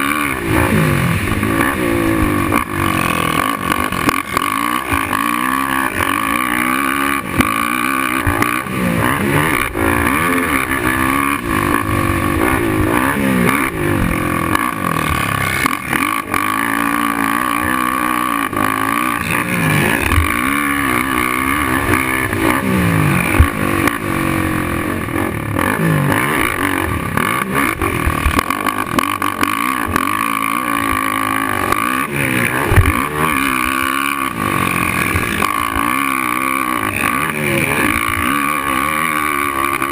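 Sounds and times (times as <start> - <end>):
quad engine revving: 0.0 - 39.9
sharp knocks: 32.7 - 33.0.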